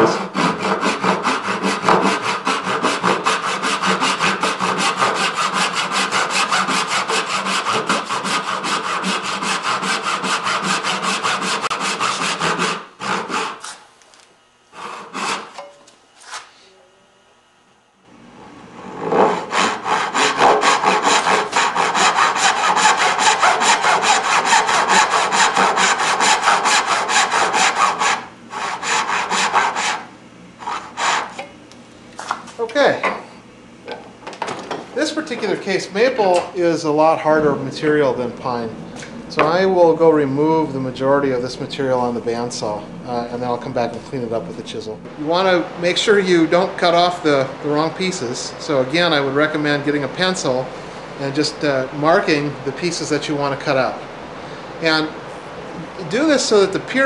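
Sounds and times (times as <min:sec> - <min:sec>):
hand saw cutting wood: 0:00.0 - 0:13.8, 0:14.7 - 0:15.6, 0:18.9 - 0:31.4.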